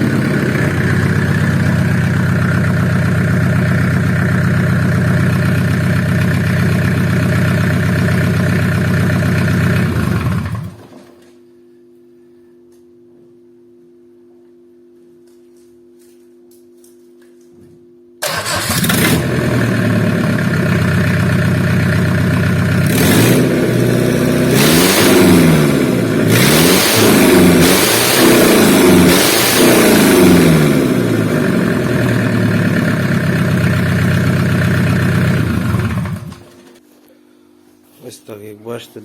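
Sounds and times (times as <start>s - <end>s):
diesel van engine running: 0.0s - 10.8s, 18.2s - 36.6s.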